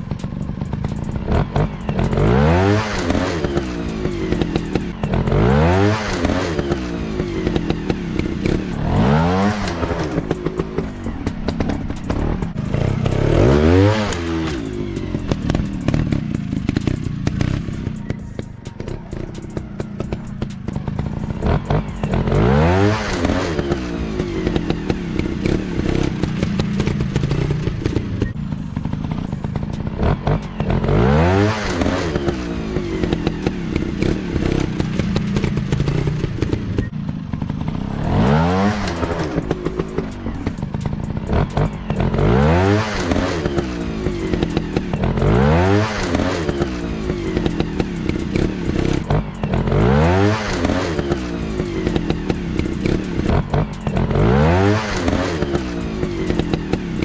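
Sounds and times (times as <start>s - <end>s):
off-road motorcycle engines revving: 0.0s - 57.0s.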